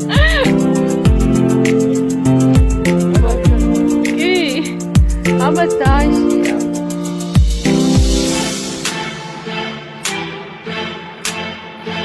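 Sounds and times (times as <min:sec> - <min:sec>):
held instrumental notes: 0:00.0 - 0:12.0
deep drum thumps: 0:02.5 - 0:08.5.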